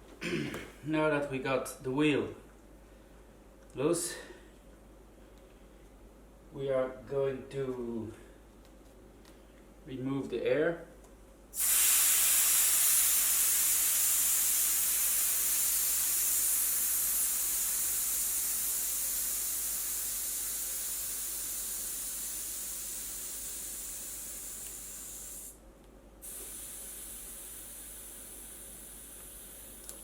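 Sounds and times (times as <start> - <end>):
air hissing out of tyre valve: 11.6 - 25.6, 26.2 - 30.0.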